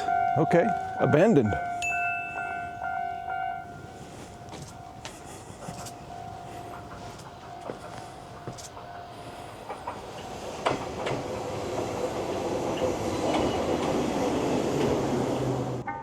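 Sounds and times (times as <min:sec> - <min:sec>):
train running on rails: 0:00.0 - 0:16.0.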